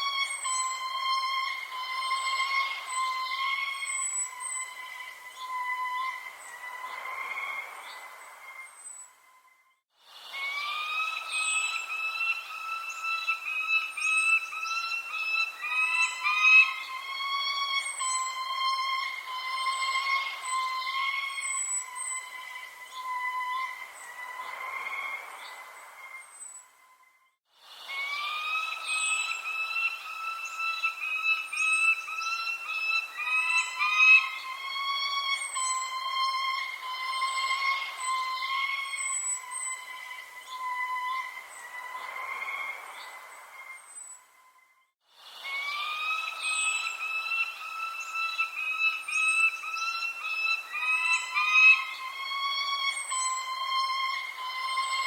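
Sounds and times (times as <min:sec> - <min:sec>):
birds calling: 0:00.0 - 0:09.2, 0:10.3 - 0:26.8, 0:27.9 - 0:44.4, 0:45.4 - 0:55.0
high downward sliding chirps: 0:10.2 - 0:24.8, 0:27.8 - 0:42.2, 0:45.4 - 0:55.0.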